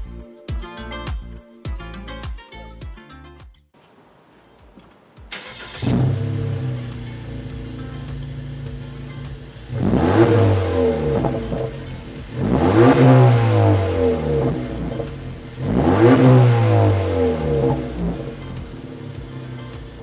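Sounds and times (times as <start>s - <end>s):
engine idling and revving: 4.8s - 20.0s.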